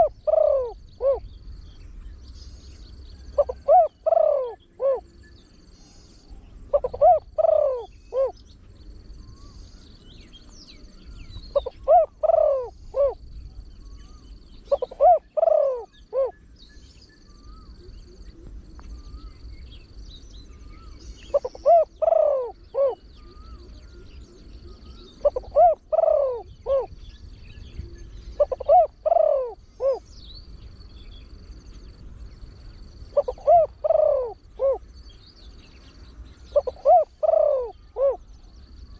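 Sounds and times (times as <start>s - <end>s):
dove cooing: 0.0s - 1.3s, 3.2s - 5.2s, 6.0s - 9.6s, 11.0s - 16.4s, 20.6s - 30.1s, 33.0s - 34.9s, 36.4s - 38.9s
faint high chirping: 0.0s - 38.9s.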